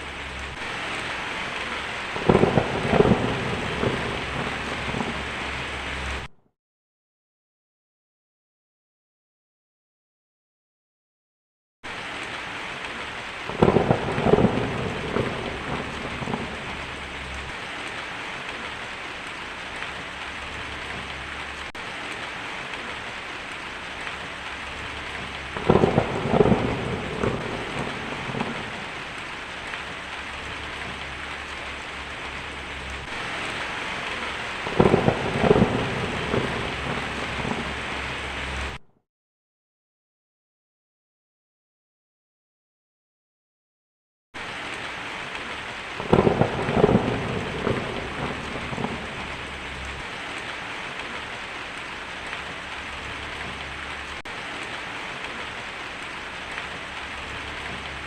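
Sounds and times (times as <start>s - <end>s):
heavy rain: 0.0s - 6.3s, 11.9s - 38.8s, 44.4s - 58.0s
thunder rumbling: 0.0s - 6.3s, 12.9s - 38.8s, 45.6s - 58.0s.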